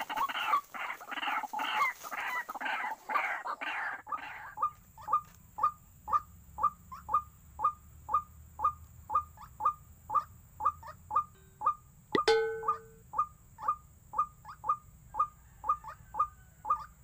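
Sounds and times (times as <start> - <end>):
brief steady tone: 12.2 - 13.0.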